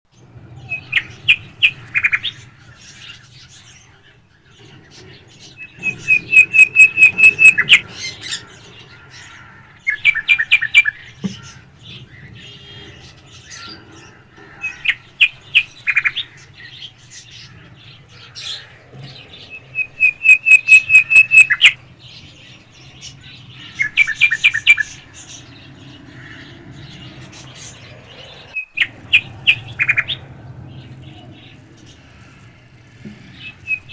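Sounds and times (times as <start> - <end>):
parakeet chirping: 0.0 - 33.9
steady low hum: 0.1 - 33.9.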